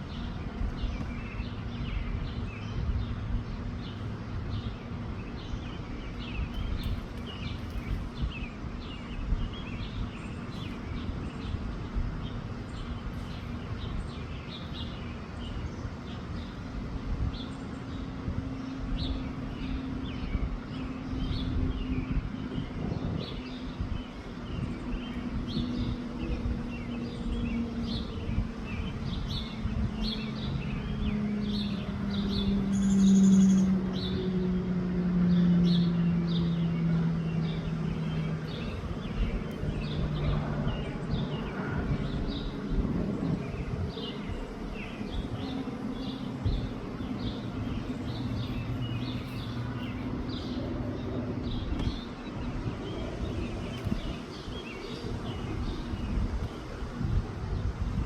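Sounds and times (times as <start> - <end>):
birds chirping: 0.0 - 58.0
wind rumble on microphone: 0.0 - 58.0
passing vehicle engine: 29.9 - 54.3.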